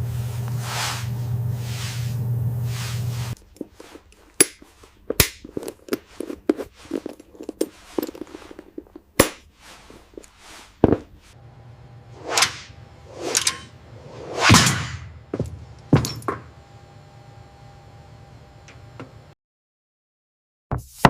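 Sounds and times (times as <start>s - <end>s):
swish: 14.0s - 15.0s.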